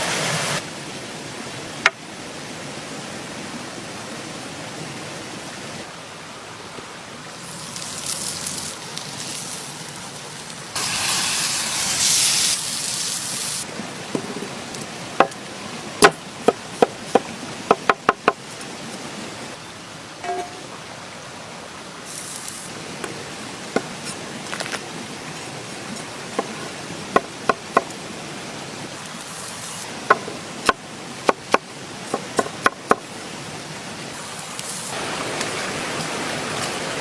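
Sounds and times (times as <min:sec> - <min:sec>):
food sizzling on grill: 0:07.3 - 0:13.7, 0:22.0 - 0:23.1, 0:28.9 - 0:30.4, 0:34.1 - 0:35.5.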